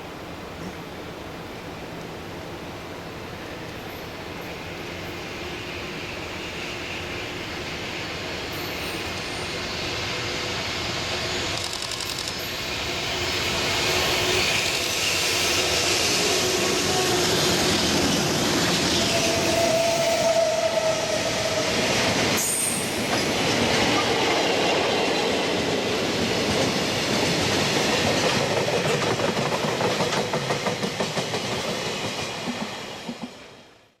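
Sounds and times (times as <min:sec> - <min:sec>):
train wheel squeal: 0:03.8 - 0:24.5
train wheels clacking on rails: 0:06.0 - 0:33.6.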